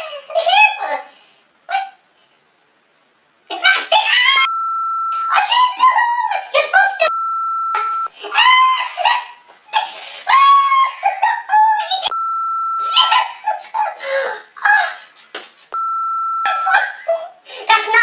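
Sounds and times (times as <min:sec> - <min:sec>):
censor bleep: 0:04.5 - 0:05.6, 0:07.1 - 0:08.1, 0:12.1 - 0:13.1, 0:15.8 - 0:16.8
high-pitched yelps and laughter: 0:08.2 - 0:12.0, 0:12.8 - 0:14.0.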